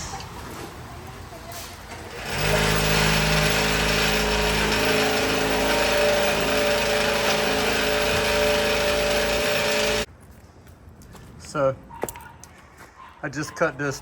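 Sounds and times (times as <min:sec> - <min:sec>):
power tool cutting plastic pipe: 0:02.1 - 0:10.1.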